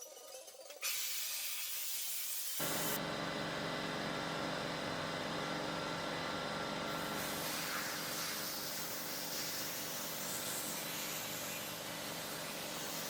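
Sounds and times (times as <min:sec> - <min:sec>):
power tool hissing: 0:02.4 - 0:04.4, 0:05.0 - 0:13.0
electric motor hum: 0:02.6 - 0:08.2.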